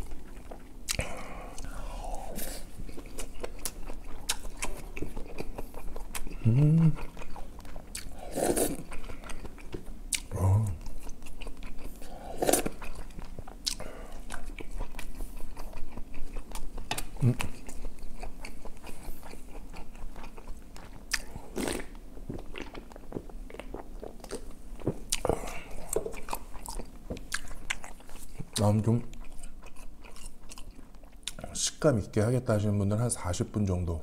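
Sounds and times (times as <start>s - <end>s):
chewing and biting food: 0.0s - 1.8s, 2.7s - 31.5s
person humming mm: 6.3s - 7.1s, 10.3s - 10.9s, 17.2s - 17.5s.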